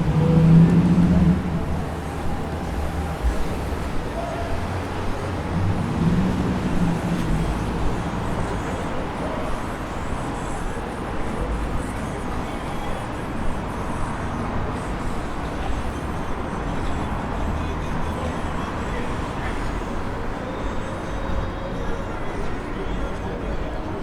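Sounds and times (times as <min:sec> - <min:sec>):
passing cars: 0:00.0 - 0:24.0
vehicle engine hum: 0:00.0 - 0:24.0.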